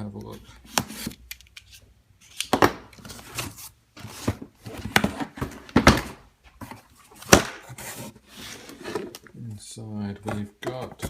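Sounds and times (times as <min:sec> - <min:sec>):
packaging scraping and rustling: 0:06.6 - 0:09.2.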